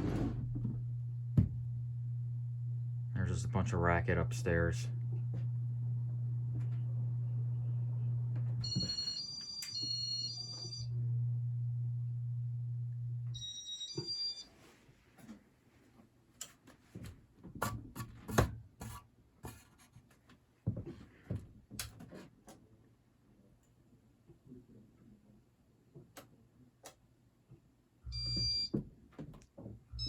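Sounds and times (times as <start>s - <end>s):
ceiling fan motor humming: 0.0s - 9.1s
electronic beeping tones: 8.6s - 10.9s, 28.1s - 28.7s.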